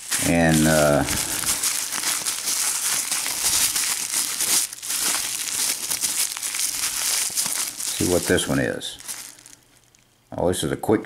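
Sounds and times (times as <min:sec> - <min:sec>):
packaging crinkling: 0:00.0 - 0:10.1.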